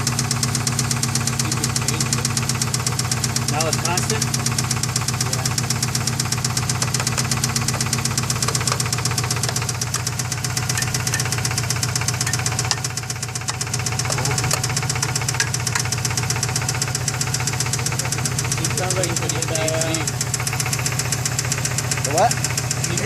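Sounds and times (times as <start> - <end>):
car engine running: 0.0 - 23.0
rapid ticking knock in engine: 0.0 - 23.0.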